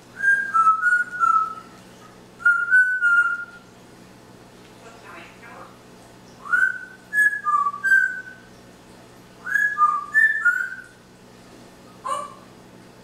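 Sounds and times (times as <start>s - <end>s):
parrot whistling a tune: 0.2s - 1.8s, 2.4s - 3.6s, 6.4s - 8.5s, 9.4s - 11.0s, 12.0s - 12.4s.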